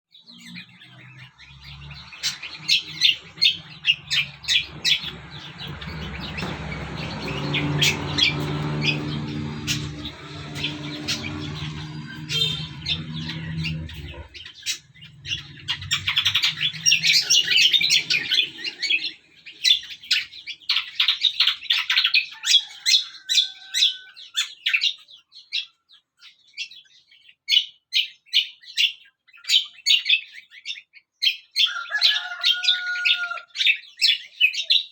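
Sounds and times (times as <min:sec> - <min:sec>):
songbirds chirping: 0:00.0 - 0:34.9
low mechanical hum: 0:01.4 - 0:20.0.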